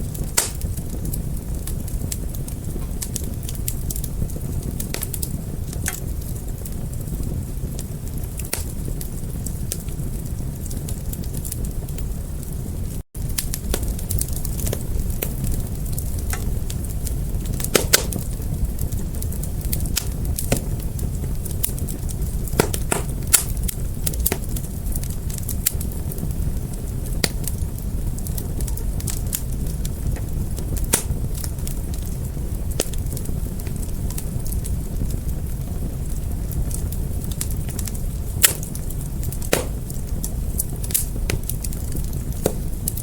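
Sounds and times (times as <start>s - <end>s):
fire crackling: 0.0s - 43.0s
low rumble of flames: 0.0s - 43.0s.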